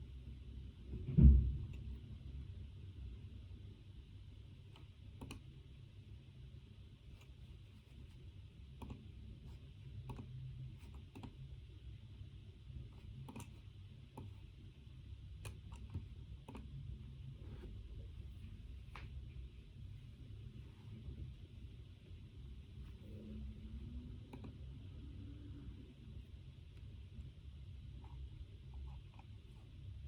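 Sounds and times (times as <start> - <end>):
low room hum: 0.0 - 30.0
computer keyboard keystrokes: 4.8 - 5.5, 8.8 - 9.1, 10.9 - 11.4, 13.2 - 13.6.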